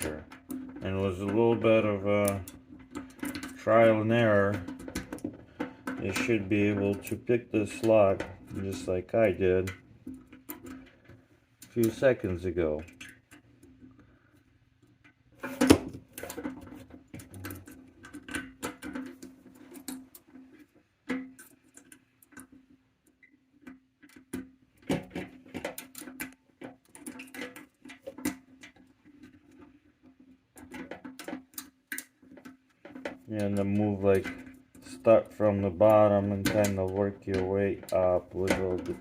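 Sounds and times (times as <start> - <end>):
metallic clicks and scrapes: 0.0 - 39.0.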